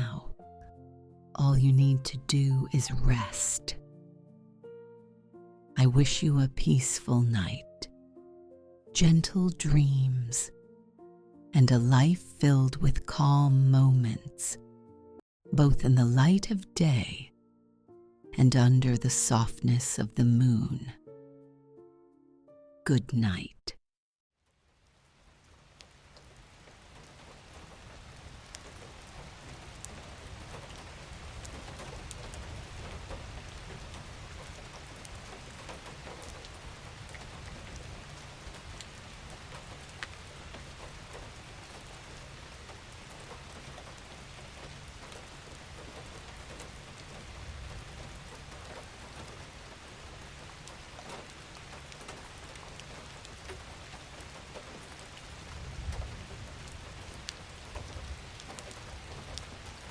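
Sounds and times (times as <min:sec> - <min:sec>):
individual raindrops: 0:24.4 - 0:59.9
steady rain falling: 0:24.4 - 0:59.9.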